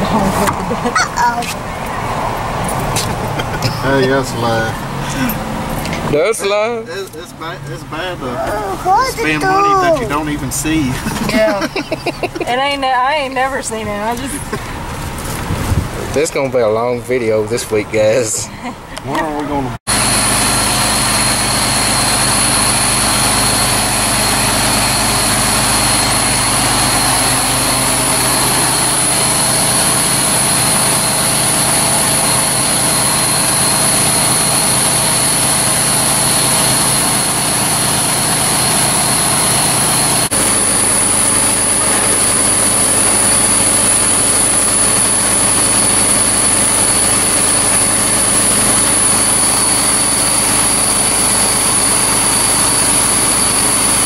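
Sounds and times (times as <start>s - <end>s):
machine whining and rushing: 19.9s - 54.0s.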